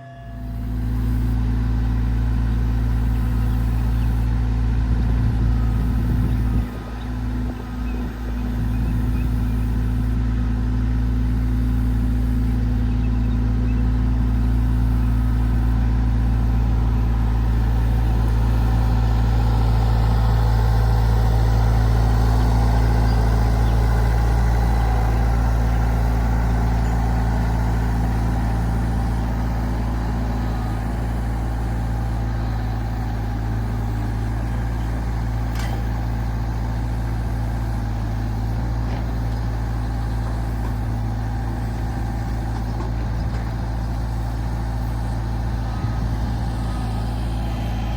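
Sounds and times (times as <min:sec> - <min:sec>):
tractor engine droning: 0:00.0 - 0:47.9.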